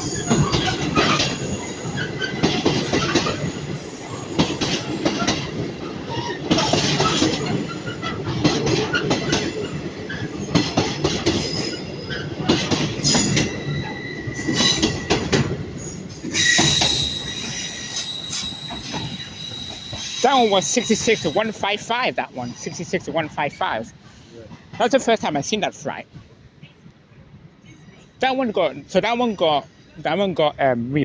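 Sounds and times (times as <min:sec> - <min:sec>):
freight train passing: 0:00.0 - 0:26.6
high steady wheel squeal: 0:13.0 - 0:21.8.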